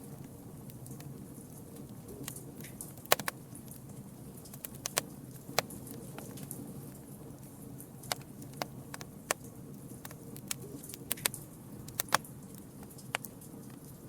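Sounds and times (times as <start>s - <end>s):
campfire crackling and popping: 0.0s - 14.0s
low rumble of flames: 0.0s - 14.0s.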